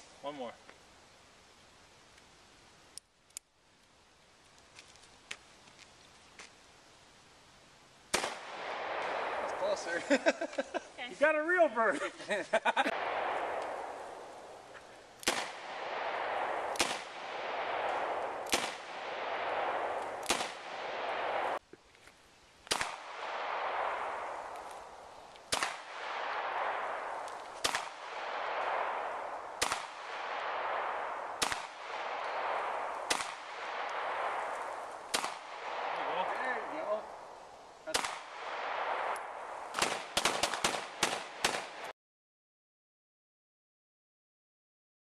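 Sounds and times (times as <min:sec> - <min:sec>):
gunshots with long echo: 0:08.1 - 0:10.4, 0:12.8 - 0:21.6, 0:22.7 - 0:37.2, 0:37.9 - 0:41.9.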